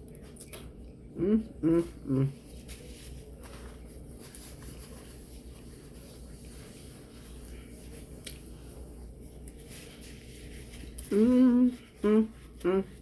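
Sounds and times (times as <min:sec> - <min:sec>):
person chewing sandwich: 0:00.0 - 0:04.9, 0:05.7 - 0:13.0
low room hum: 0:00.0 - 0:13.0
wet mouth clicks: 0:00.1 - 0:02.0.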